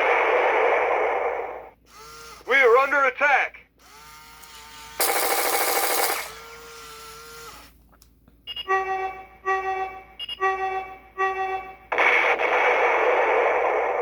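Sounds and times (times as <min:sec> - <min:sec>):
loud noisy electronic blast: 0:11.9 - 0:14.0.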